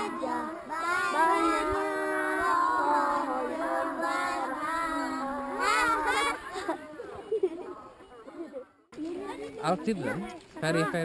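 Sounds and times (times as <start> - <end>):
children singing: 0.0 - 7.0.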